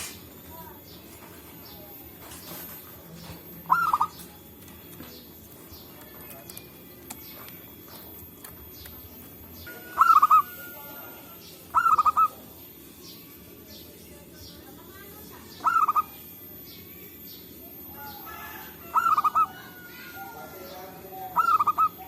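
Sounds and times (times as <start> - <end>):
dove cooing: 2.5 - 12.8, 15.5 - 16.4, 17.7 - 22.0.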